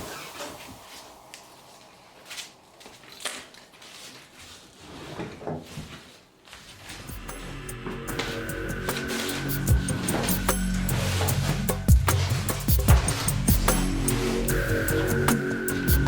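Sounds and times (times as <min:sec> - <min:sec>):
knocks and rustles of handling: 0:02.8 - 0:07.1
music: 0:07.0 - 0:16.0.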